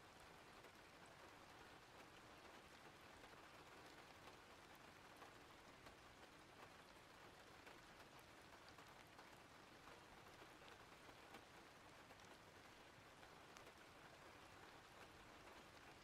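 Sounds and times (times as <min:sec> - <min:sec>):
small raindrop ticks: 0:00.0 - 0:16.0.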